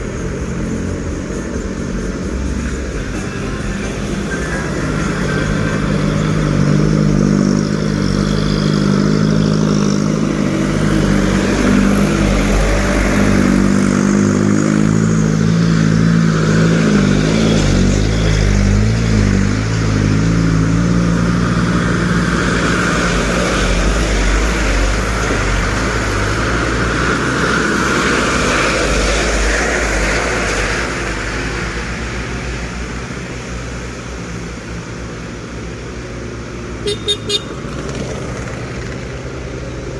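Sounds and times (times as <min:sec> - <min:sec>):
truck engines running: 0:00.0 - 0:39.9.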